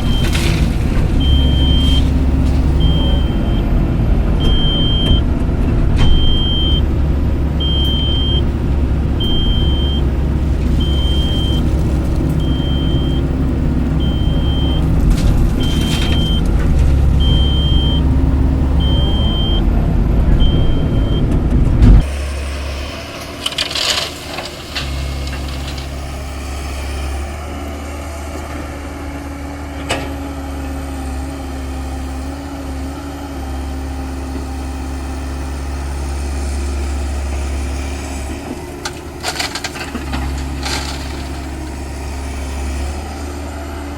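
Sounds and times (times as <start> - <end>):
engine idling: 0.0 - 27.3
heavy diesel engines running: 0.0 - 43.9
reversing alarm beeping: 1.2 - 3.7, 4.4 - 5.3, 6.0 - 6.9, 7.6 - 8.5, 9.2 - 10.1, 10.7 - 11.7, 12.4 - 13.4, 14.0 - 15.0, 15.6 - 16.5, 17.2 - 19.7, 20.4 - 21.3.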